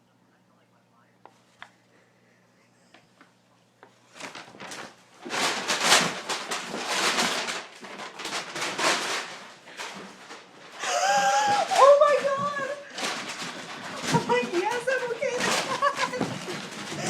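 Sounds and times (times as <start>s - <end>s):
bag rustling and scuffling: 4.0s - 17.0s.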